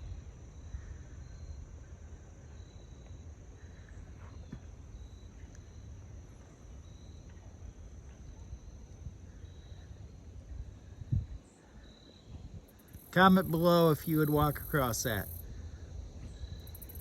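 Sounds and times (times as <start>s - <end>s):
insects chirping: 12.7s - 15.4s, 16.3s - 17.0s.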